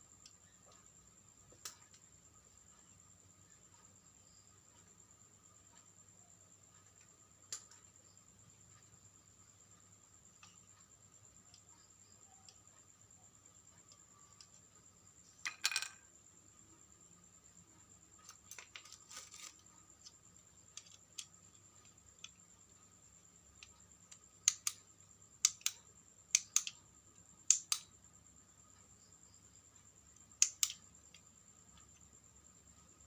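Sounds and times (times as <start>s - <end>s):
small hard objects clicking: 18.2s - 22.4s, 23.5s - 24.8s, 25.4s - 26.8s, 30.4s - 31.2s.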